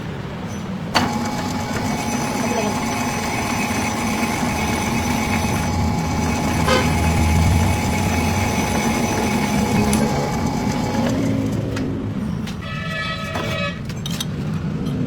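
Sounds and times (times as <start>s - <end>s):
machine running with hum: 0.9s - 12.5s.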